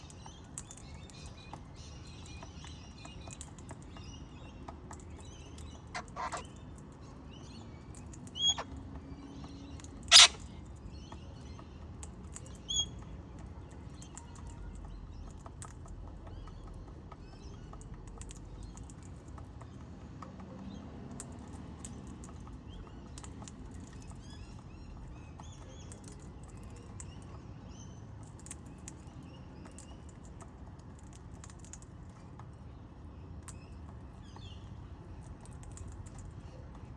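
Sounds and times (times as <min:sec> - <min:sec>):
birds chirping: 0:00.0 - 0:15.5.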